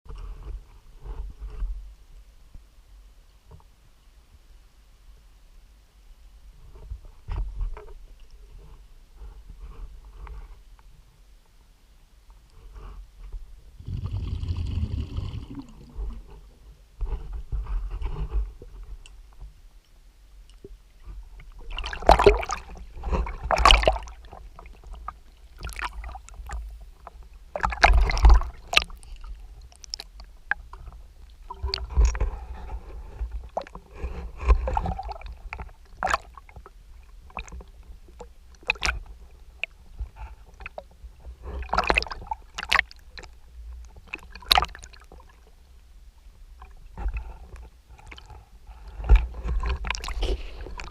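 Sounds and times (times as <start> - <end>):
water splashing and sloshing: 12.8 - 19.6, 20.4 - 50.9.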